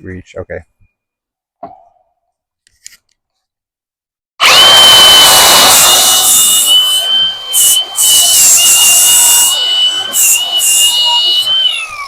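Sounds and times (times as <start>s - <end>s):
angle grinder whining: 4.4s - 12.0s.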